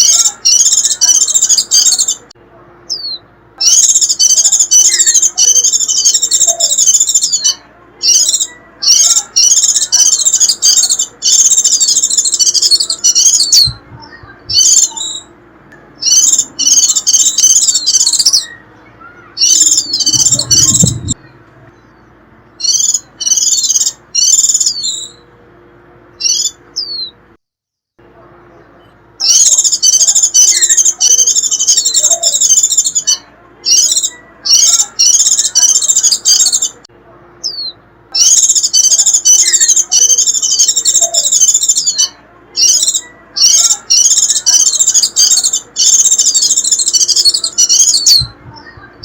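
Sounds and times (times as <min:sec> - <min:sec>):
white-eye shrill twittering song: 0:00.0 - 0:25.3, 0:26.1 - 0:27.2, 0:28.6 - 0:49.0
low rumble: 0:19.8 - 0:22.5.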